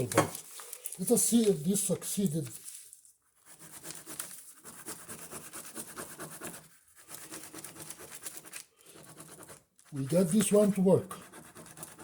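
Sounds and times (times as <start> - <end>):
pen scribbling on paper: 3.4 - 12.0.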